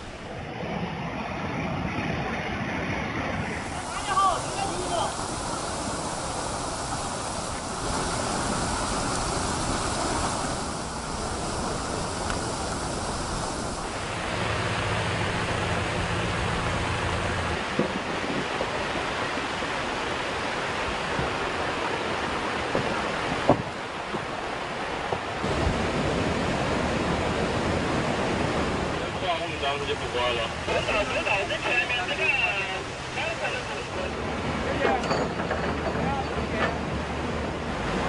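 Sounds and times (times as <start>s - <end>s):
wind noise on microphone: 0.0s - 29.2s
floodwater rushing: 0.0s - 38.0s.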